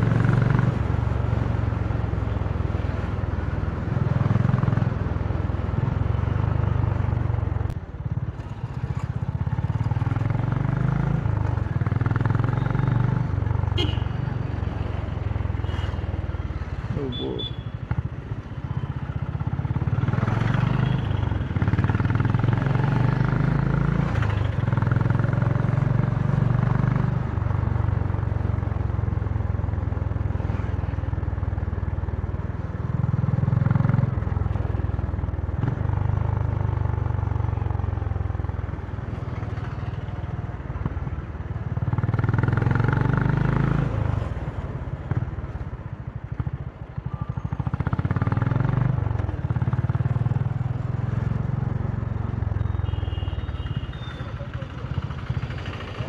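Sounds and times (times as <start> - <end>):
motorcycle engine revving: 19.2 - 28.2, 41.7 - 45.5, 46.3 - 56.0.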